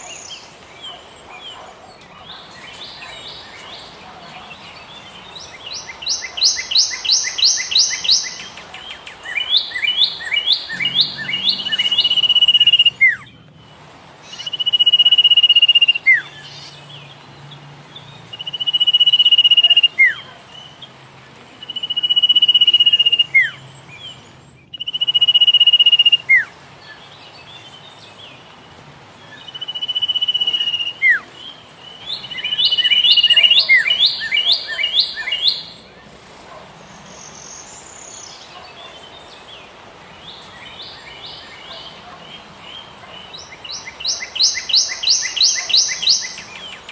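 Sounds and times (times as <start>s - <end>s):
bird chattering notes: 5.5s - 13.3s.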